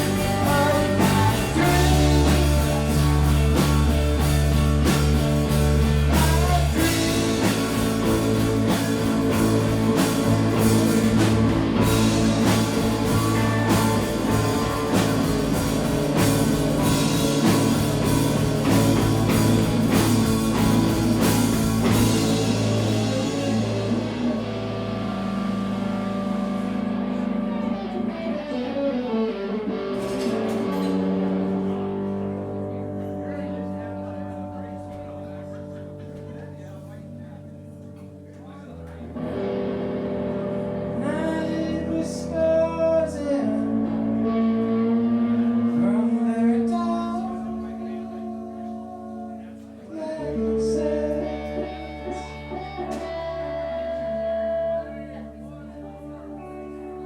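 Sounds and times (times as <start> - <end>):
descending guitar slide: 0.0 - 34.8
live rock band playing: 0.0 - 57.0.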